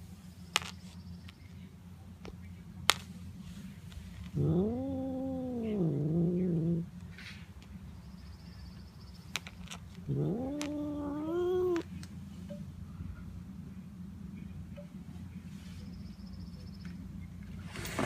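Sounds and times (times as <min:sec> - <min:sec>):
cat meowing: 0:10.1 - 0:11.9.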